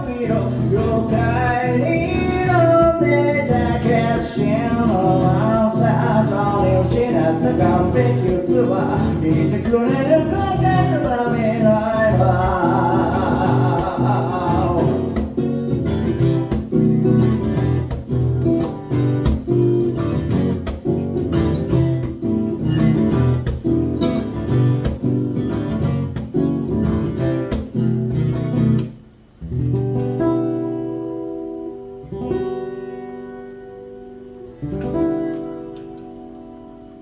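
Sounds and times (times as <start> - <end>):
person singing: 0.0 - 15.3
acoustic guitar strumming chords: 0.0 - 37.0.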